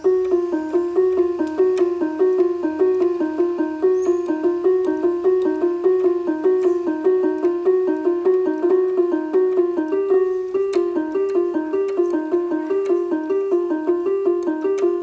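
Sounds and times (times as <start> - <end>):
electronic keyboard melody: 0.0 - 15.0.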